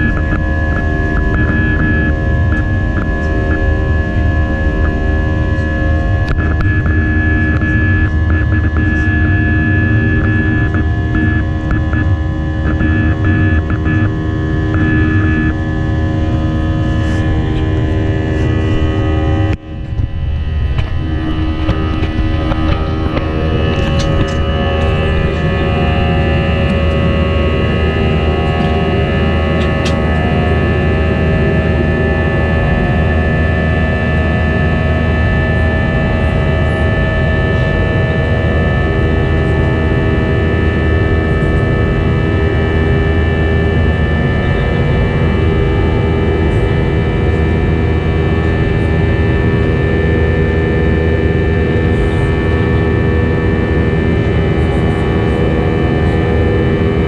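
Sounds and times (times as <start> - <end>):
rushing noise: 0.0 - 31.4
jet engines droning in cabin: 0.0 - 57.0.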